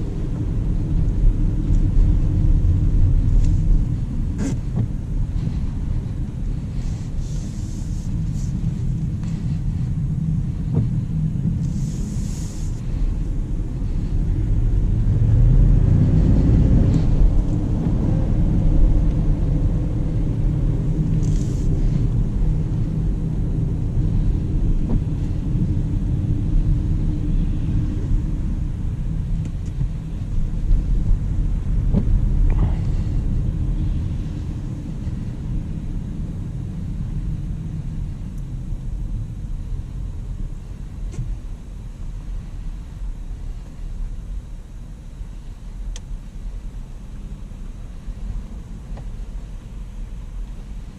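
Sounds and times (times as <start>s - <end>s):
road and tyre noise: 0.0s - 50.9s.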